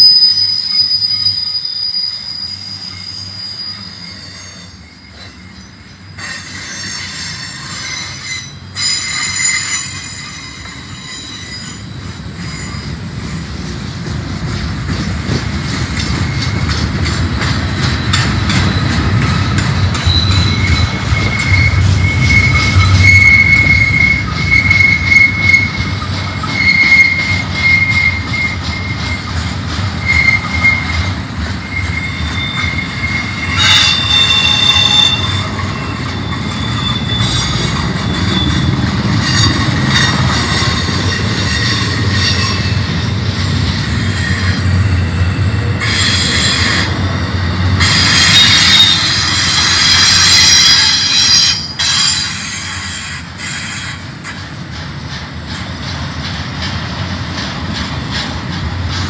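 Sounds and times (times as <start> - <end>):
wheels squealing: 0.0 - 13.7, 14.9 - 59.0
train wheels rumbling on rails: 0.0 - 59.0.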